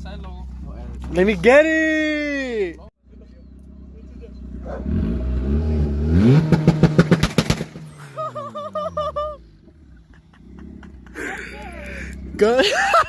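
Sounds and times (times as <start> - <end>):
car engine revving past: 4.1 - 8.2.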